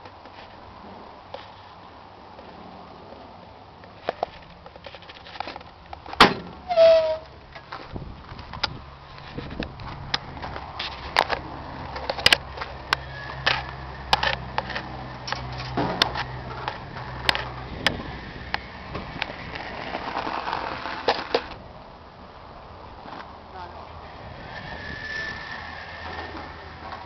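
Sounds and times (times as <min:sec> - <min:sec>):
sharp clicks and knocks: 0:07.5 - 0:19.3.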